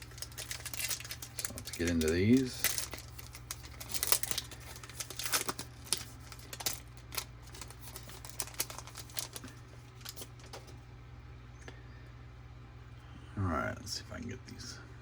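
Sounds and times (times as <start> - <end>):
wrapper crinkling: 0.0 - 10.7.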